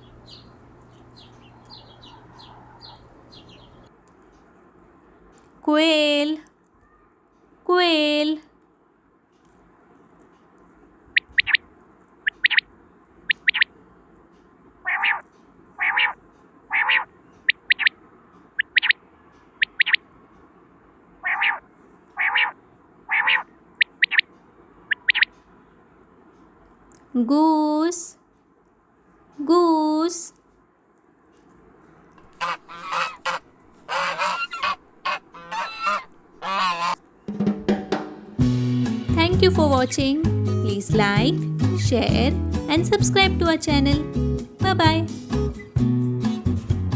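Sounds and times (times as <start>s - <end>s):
quail calling: 1.3s - 3.8s, 11.2s - 12.7s, 13.3s - 13.7s, 14.8s - 18.0s, 18.6s - 19.0s, 19.6s - 20.0s, 21.2s - 24.3s, 24.9s - 25.4s, 32.2s - 37.0s
goose honking: 14.8s - 15.2s, 15.8s - 17.9s, 21.2s - 21.6s, 22.2s - 24.2s, 32.2s - 37.0s.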